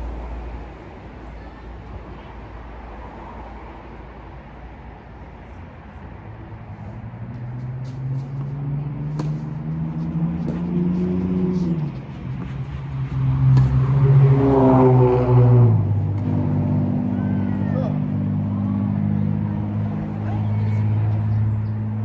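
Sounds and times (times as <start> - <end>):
vehicle engine passing by: 6.5 - 22.0.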